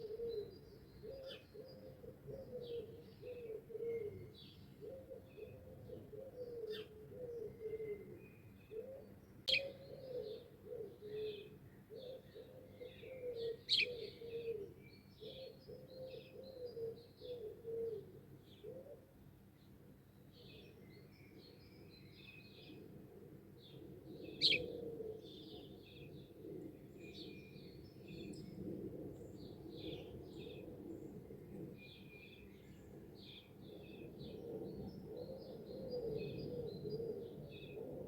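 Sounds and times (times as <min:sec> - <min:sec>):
dove cooing: 0:00.0 - 0:19.1, 0:23.6 - 0:29.1, 0:33.2 - 0:38.0
songbirds chirping and twittering: 0:00.0 - 0:38.0.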